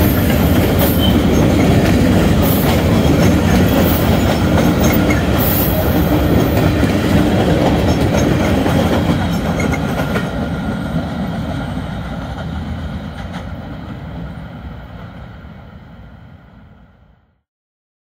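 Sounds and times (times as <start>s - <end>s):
freight train wheels clattering: 0.0s - 14.1s.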